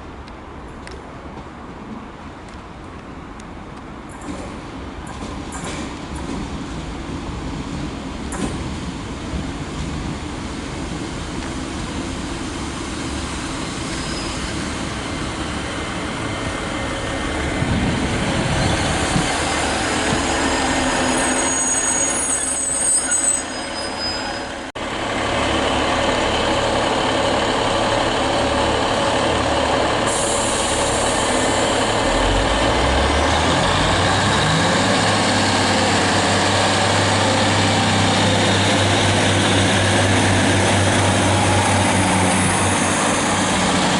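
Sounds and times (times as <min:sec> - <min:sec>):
train running on rails: 0:00.0 - 0:43.9
diesel train engine accelerating: 0:09.6 - 0:43.9
high wheel squeal: 0:13.8 - 0:14.7, 0:18.6 - 0:24.7.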